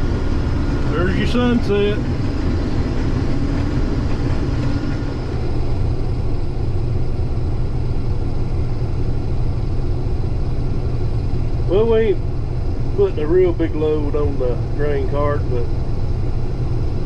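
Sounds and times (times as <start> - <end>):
combine harvester rumbling: 0.0 - 17.0.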